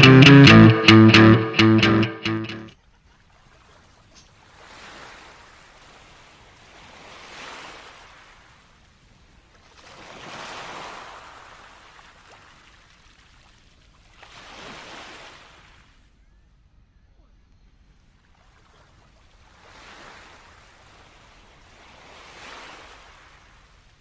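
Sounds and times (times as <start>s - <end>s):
small waves breaking on beach: 9.8s - 11.8s, 18.8s - 24.0s.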